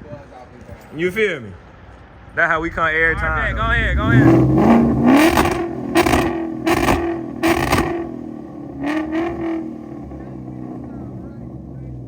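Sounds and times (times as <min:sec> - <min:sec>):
loud rushing bursts: 0:02.5 - 0:08.1
car engine accelerating: 0:02.6 - 0:12.0.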